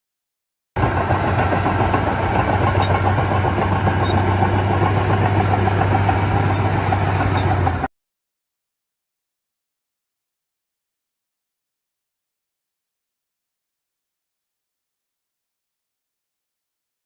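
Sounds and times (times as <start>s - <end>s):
toy machine engine idling: 0.8s - 7.9s.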